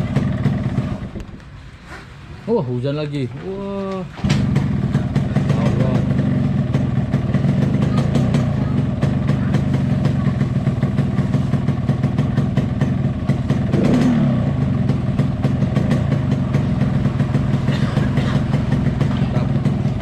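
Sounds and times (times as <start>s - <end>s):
motorcycle engine idling: 0.0s - 1.3s, 4.2s - 20.0s.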